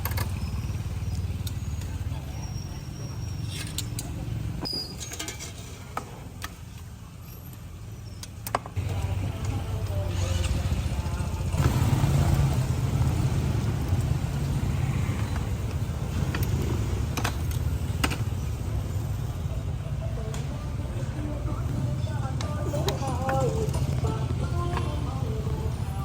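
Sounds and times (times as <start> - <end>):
rumble of passing traffic: 0.0 - 26.0.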